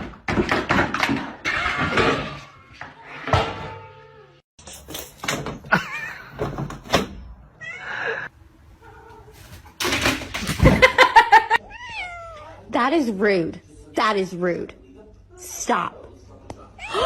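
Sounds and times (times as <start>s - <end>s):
cat meowing: 11.6s - 12.6s.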